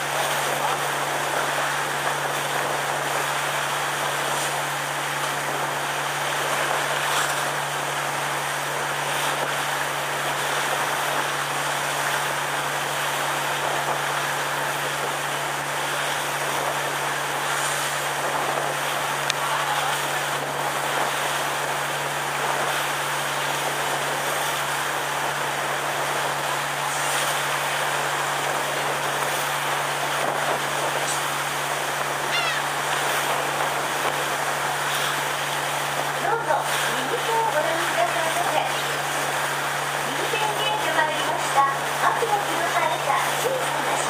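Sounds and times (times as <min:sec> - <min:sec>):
boat engine hum: 0:00.0 - 0:44.0
high gliding call: 0:32.2 - 0:32.8.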